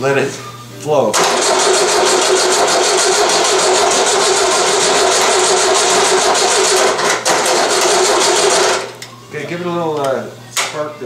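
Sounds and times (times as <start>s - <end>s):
starter motor cranking engine: 1.2s - 9.0s.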